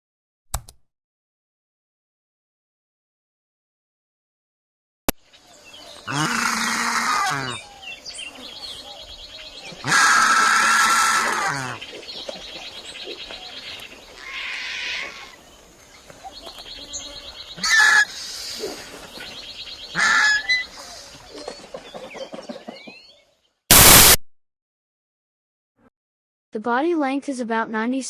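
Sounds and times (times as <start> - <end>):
bird calls: 5.2 - 23.4.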